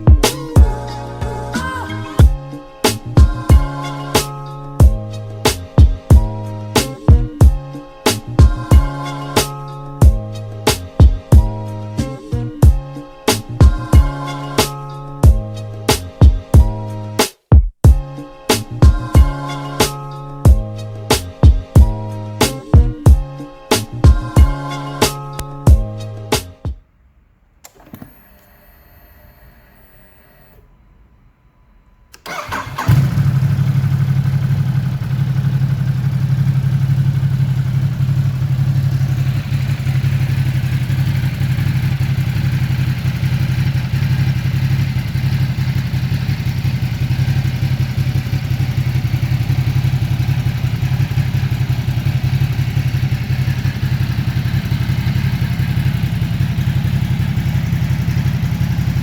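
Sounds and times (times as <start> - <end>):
faint steady tones: 27.0 - 32.3
motorcycle engine starting and idling: 27.6 - 30.7, 32.1 - 59.0.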